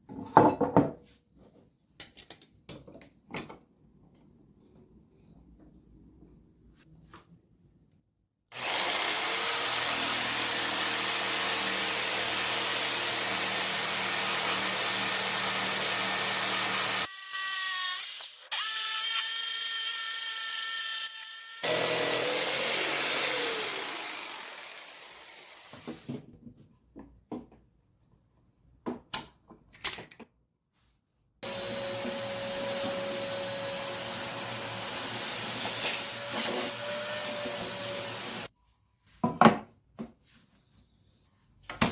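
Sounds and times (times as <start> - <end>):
power tools cutting wood: 8.5 - 26.1, 31.4 - 38.5
high whining power tool: 8.6 - 26.0, 31.4 - 38.5.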